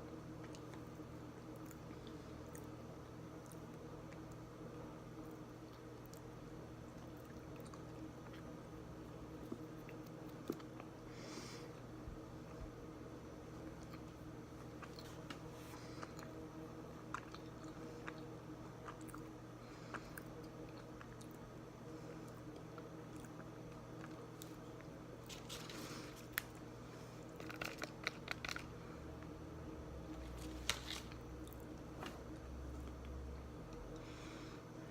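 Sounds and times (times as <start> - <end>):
chewing crunches: 13.6 - 21.5, 27.2 - 28.8.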